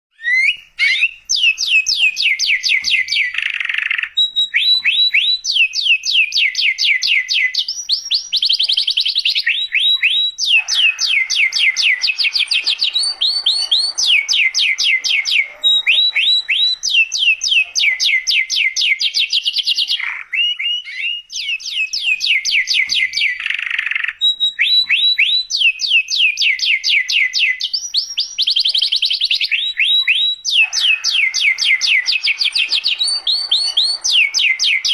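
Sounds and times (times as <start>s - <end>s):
canary singing trills: 0.1s - 34.9s.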